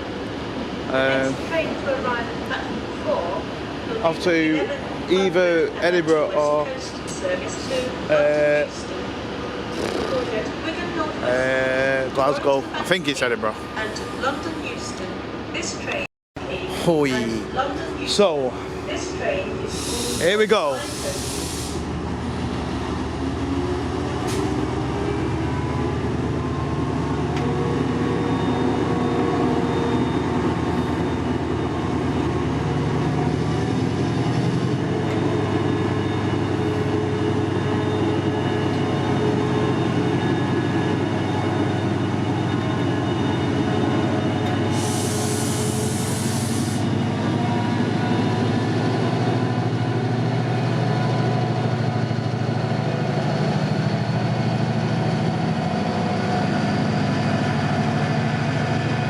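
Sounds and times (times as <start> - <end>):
diesel locomotive engine running: 0.0 - 59.0
air hissing: 19.7 - 21.9, 44.7 - 46.9.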